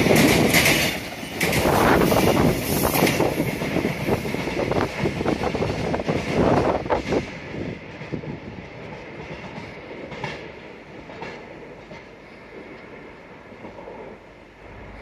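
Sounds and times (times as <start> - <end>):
wheel clacks: 0.0 - 5.2
train passing: 0.0 - 15.0.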